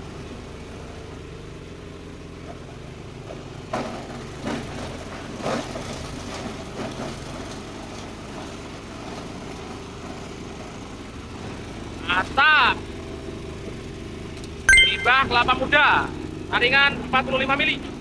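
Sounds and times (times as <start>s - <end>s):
diesel engine running: 7.7s - 14.7s.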